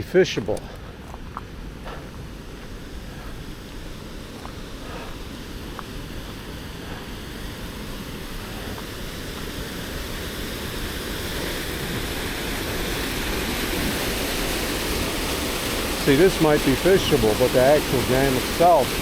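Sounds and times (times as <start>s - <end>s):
floodwater rushing through stream: 0.0s - 19.0s.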